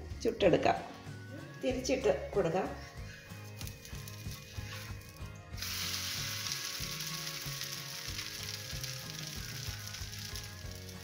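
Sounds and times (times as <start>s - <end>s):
dosa sizzling in ghee: 3.6s - 11.0s.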